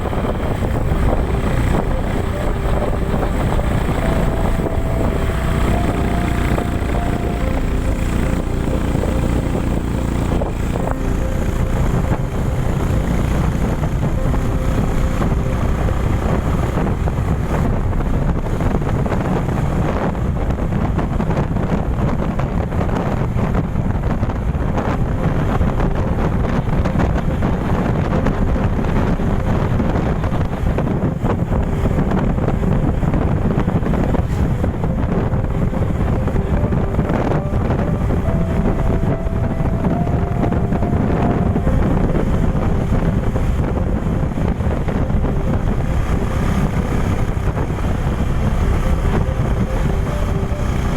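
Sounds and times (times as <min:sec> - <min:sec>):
vehicle engine noise: 0:00.0 - 0:50.9
wind buffeting microphone: 0:00.0 - 0:50.9.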